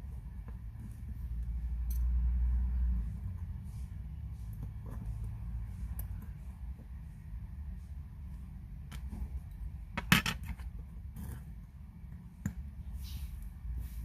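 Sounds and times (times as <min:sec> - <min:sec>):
steady low hum: 0:00.0 - 0:14.0
metal tools clicking on watch parts: 0:01.7 - 0:02.2.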